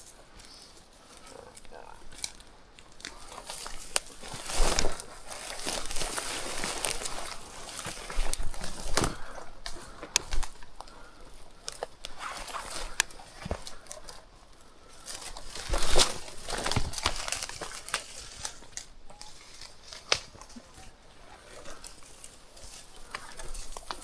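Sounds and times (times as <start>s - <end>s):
dry brush rustling and crackling: 0.0s - 24.0s.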